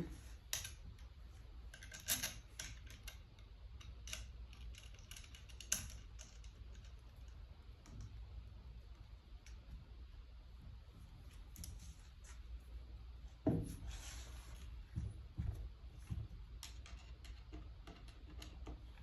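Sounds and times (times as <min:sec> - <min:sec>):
light clicks and taps of hand work: 0:14.9 - 0:19.0.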